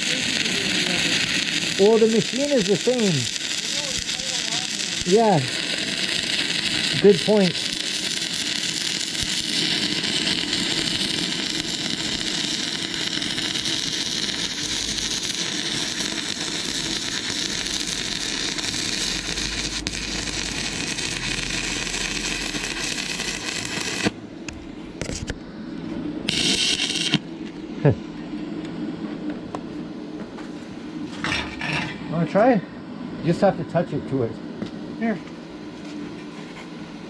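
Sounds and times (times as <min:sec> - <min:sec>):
welding arc crackling: 0:00.0 - 0:25.3, 0:26.2 - 0:28.0.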